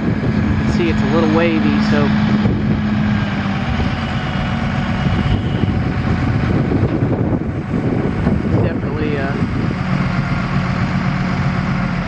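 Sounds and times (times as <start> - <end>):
crane engine rumbling: 0.0 - 12.0.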